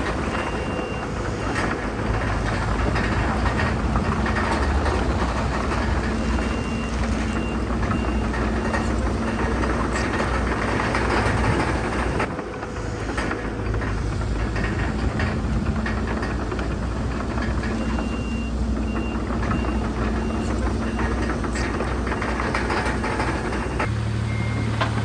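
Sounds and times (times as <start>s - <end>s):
reversing alarm beeping: 0.0s - 12.3s, 17.3s - 25.0s
heavy machinery diesel engines: 0.0s - 25.0s.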